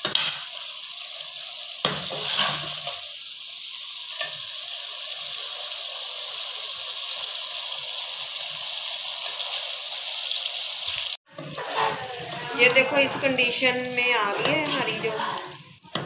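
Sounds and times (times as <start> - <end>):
gravy sizzling in a metal pot: 0.0 - 16.0
ladle scraping pot: 1.9 - 3.0, 11.3 - 16.0.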